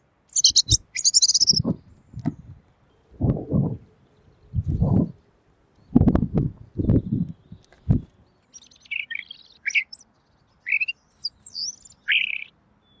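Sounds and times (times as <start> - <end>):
bird singing whistled phrases: 0.3 - 1.7, 8.5 - 10.0, 10.7 - 12.5
low thuds: 5.9 - 8.1.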